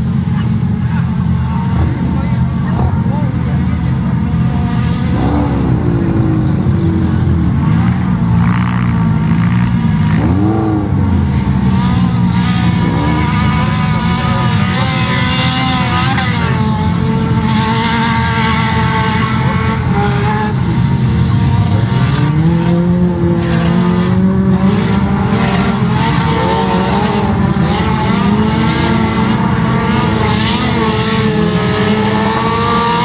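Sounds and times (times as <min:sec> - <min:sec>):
race car engines revving: 0:00.0 - 0:33.0.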